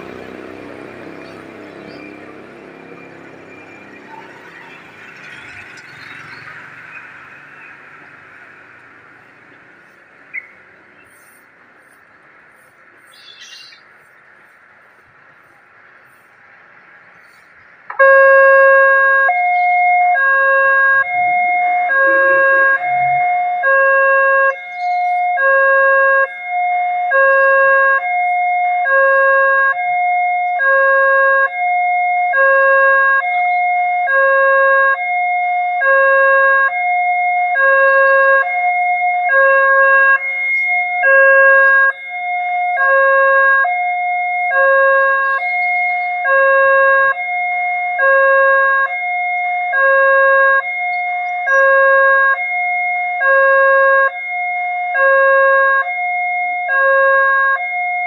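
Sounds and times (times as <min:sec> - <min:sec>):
level crossing two-tone alarm: 0:17.9 - 0:58.0.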